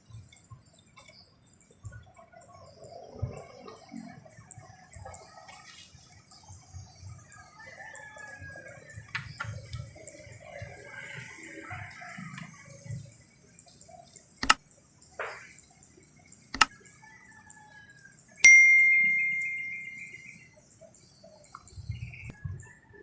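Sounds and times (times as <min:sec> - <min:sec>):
sharp clicks: 0:14.1 - 0:14.6, 0:16.5 - 0:16.7
metallic strike with ringing tone: 0:18.4 - 0:20.1.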